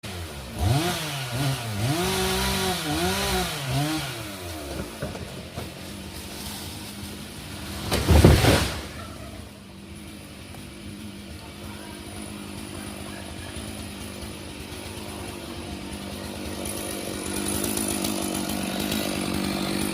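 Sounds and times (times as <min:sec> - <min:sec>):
chainsaw revving: 0:00.0 - 0:19.9
heavy crash: 0:07.4 - 0:09.3.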